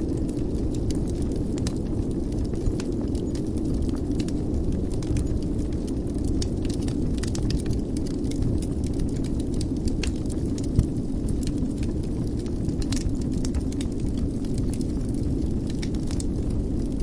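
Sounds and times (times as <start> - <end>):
fire popping: 0.0 - 17.0
low rumble of flames: 0.0 - 17.0
wood fire crackling: 0.0 - 17.0.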